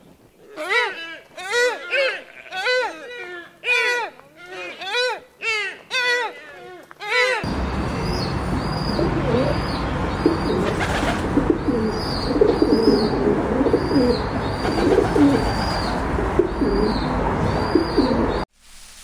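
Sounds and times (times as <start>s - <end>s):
low wavering bird calls: 7.5s - 18.5s
steady hiss: 18.5s - 19.0s.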